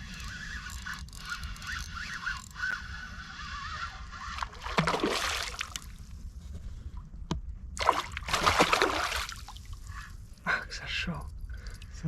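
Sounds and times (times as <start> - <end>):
water splashing and sloshing: 4.2 - 6.0, 7.8 - 10.0.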